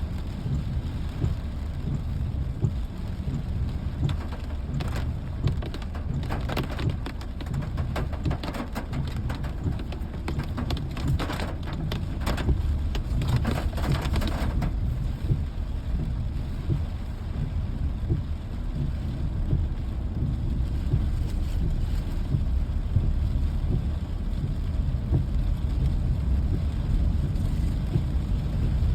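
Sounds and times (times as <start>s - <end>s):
raindrops spattering: 0.0s - 28.9s
steady low rumble: 0.0s - 28.9s.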